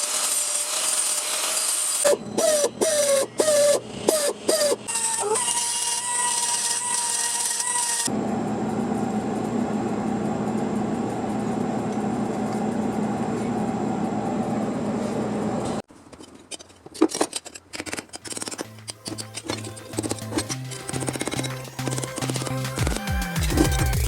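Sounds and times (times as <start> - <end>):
power tool cutting sheet metal: 0.0 - 8.2, 18.3 - 24.0.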